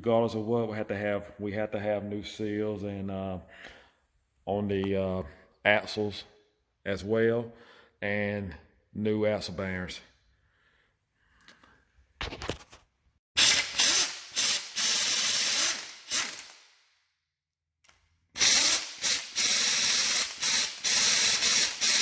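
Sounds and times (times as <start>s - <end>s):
air hissing: 13.4s - 16.6s, 18.4s - 22.0s
pneumatic ratchet bursts: 13.4s - 16.6s, 18.4s - 22.0s.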